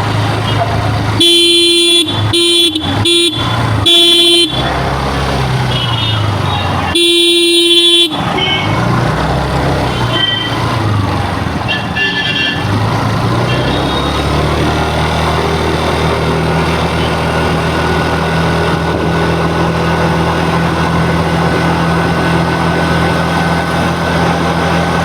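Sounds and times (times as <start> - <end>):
vehicle horn beeping: 0.4 - 4.9, 5.6 - 9.1, 9.8 - 10.7, 11.6 - 14.2.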